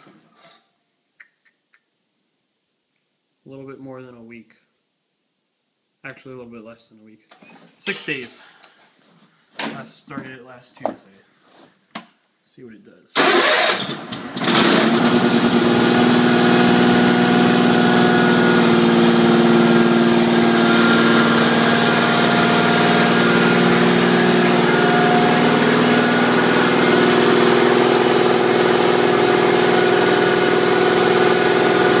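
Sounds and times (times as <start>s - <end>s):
engine idling: 14.4s - 32.0s.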